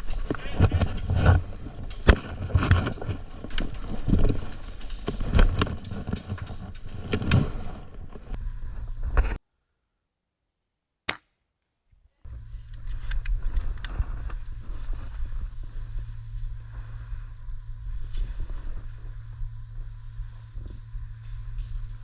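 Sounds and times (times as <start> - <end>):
outdoor microphone noise with clicks: 12.6 - 14.6.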